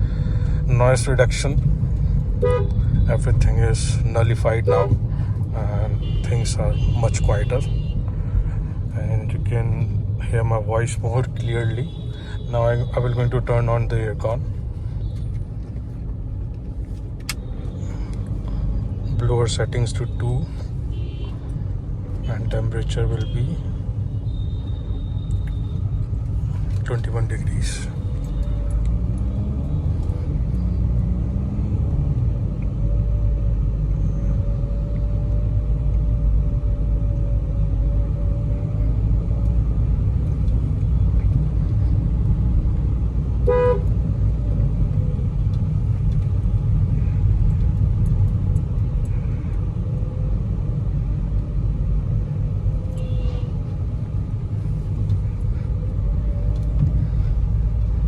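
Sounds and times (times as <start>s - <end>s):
car cabin road and engine rumble: 0.0s - 58.0s
car horn toot: 2.4s - 2.8s, 43.4s - 43.9s, 53.0s - 53.5s.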